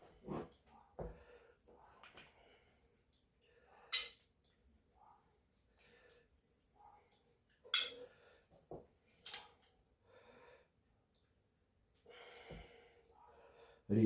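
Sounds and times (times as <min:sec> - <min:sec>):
soft breathing: 0:04.5 - 0:10.8, 0:12.0 - 0:13.9.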